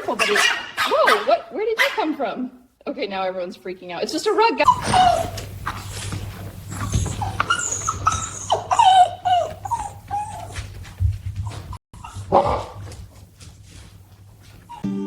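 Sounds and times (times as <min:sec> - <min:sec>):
dogs whining: 0:04.6 - 0:12.9, 0:14.6 - 0:14.9.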